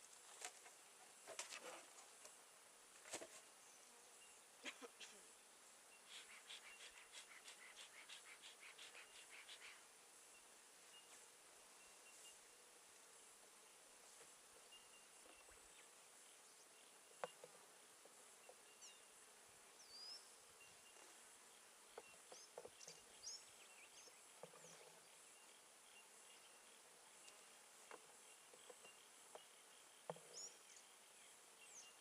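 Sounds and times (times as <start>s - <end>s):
bird chirps: 5.9s - 9.8s.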